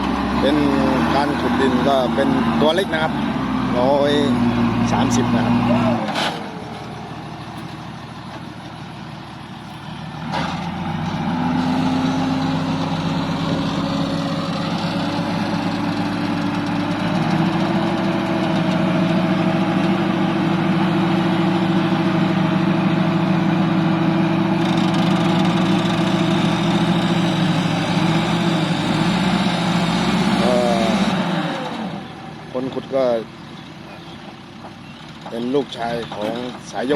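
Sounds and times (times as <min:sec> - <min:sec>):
heavy diesel engine running: 0:00.0 - 0:36.9.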